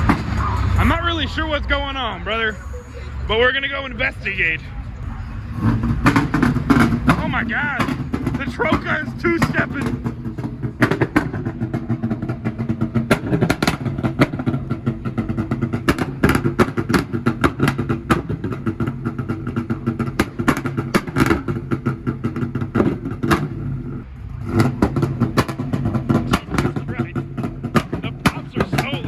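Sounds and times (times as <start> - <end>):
sharp engine pops and bangs: 0.0 - 0.4, 5.8 - 23.6, 24.5 - 29.0
truck engine on launch limiter: 0.0 - 29.0.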